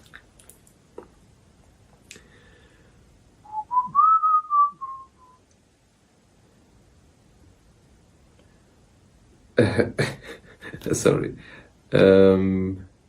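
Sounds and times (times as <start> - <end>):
person whistling: 3.4 - 5.4.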